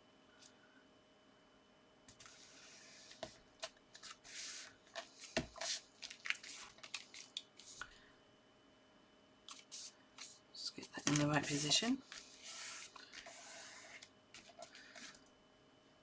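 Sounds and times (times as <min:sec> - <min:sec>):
paper rustling and sliding: 0:02.1 - 0:07.8, 0:11.0 - 0:15.2.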